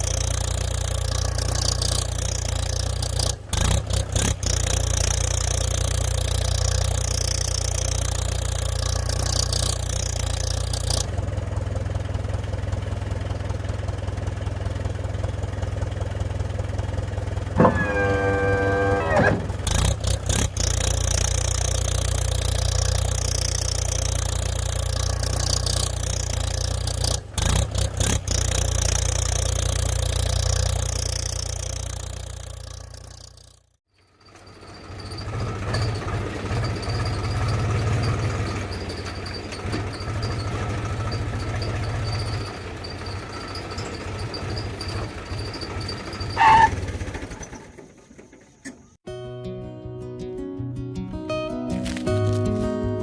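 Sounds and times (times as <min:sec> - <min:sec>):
engine running: 0:00.0 - 0:49.0, 0:51.7 - 0:53.0
horn-like tone: 0:17.6 - 0:19.5.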